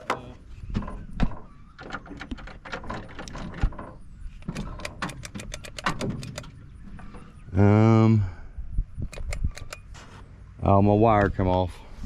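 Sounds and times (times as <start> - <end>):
small metallic clicks and rattles: 0.8 - 7.2, 9.0 - 10.1.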